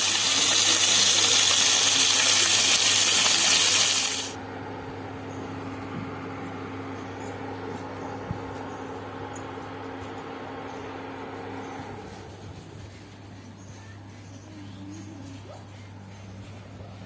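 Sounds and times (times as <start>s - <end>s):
fish sizzling in hot oil: 0.0s - 4.4s.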